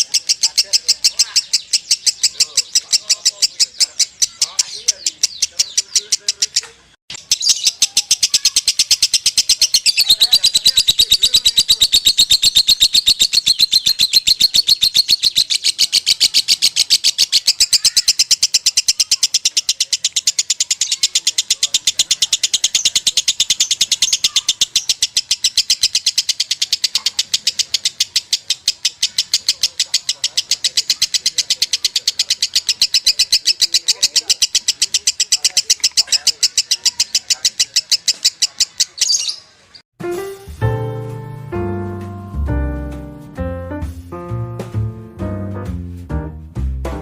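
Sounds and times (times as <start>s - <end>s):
lovebird shrill chirps: 0.0s - 39.8s.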